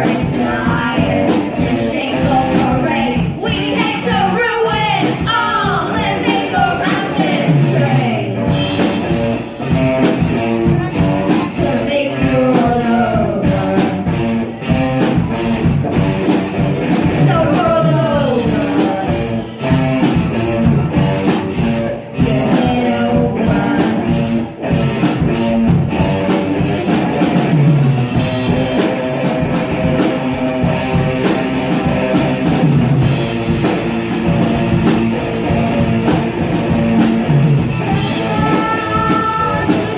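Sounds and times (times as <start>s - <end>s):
sung vocals: 0.0s - 8.6s, 10.7s - 14.7s, 16.8s - 21.3s, 22.0s - 24.6s, 37.5s - 39.9s
bass guitar: 0.0s - 39.9s
distorted electric guitars: 0.0s - 39.9s
driving drum beat: 0.0s - 39.9s.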